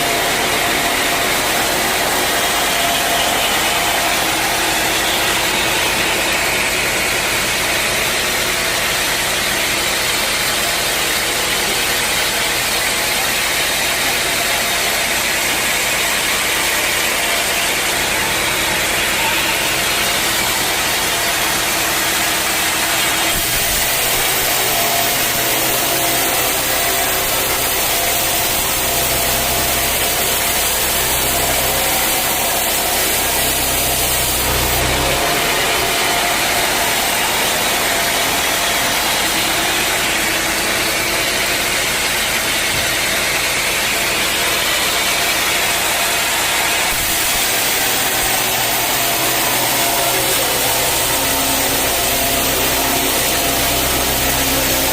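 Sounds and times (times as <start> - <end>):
sawmill machinery running: 0.0 - 54.9.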